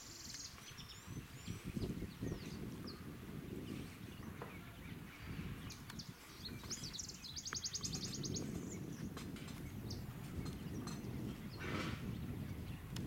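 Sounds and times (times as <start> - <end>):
bird chirps: 0.0 - 12.9.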